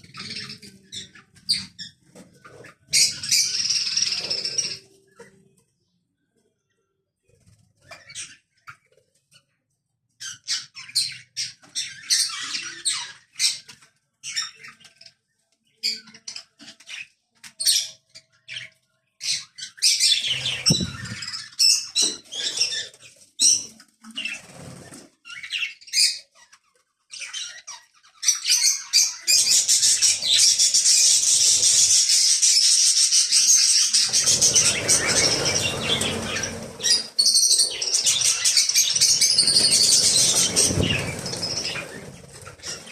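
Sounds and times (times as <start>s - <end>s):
flock of birds chirping: 0.0s - 6.7s, 7.3s - 9.6s, 10.2s - 42.9s.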